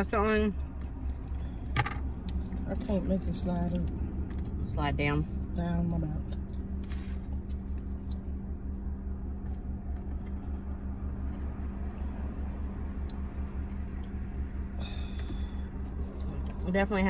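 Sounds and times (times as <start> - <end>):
low mechanical hum: 0.0 - 17.0
person chewing: 12.2 - 14.3.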